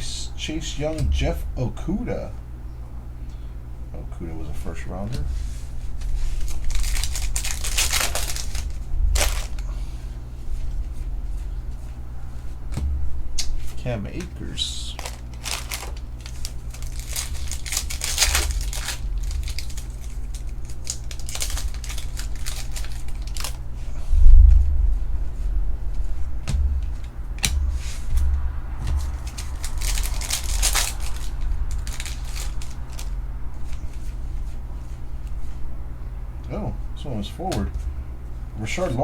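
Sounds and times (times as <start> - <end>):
low thump: 1.0 - 1.6, 12.7 - 13.3, 26.0 - 29.6
foil wrappers crinkling and tearing: 5.3 - 11.6, 13.5 - 24.7, 26.2 - 35.6.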